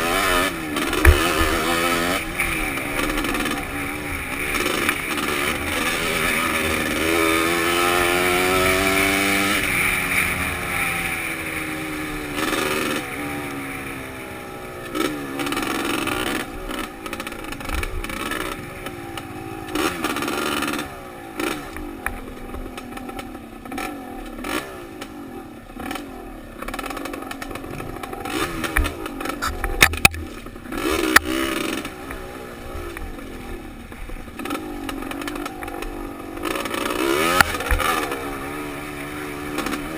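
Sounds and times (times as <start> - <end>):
motorcycle engine revving: 0.0 - 39.9
sharp knocks and clatter: 0.8 - 3.7, 26.6 - 32.2.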